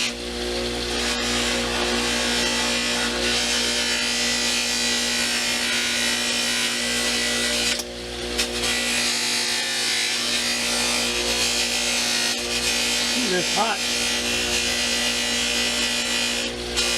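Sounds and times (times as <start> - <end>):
buffing wheel running: 13.1 - 14.2.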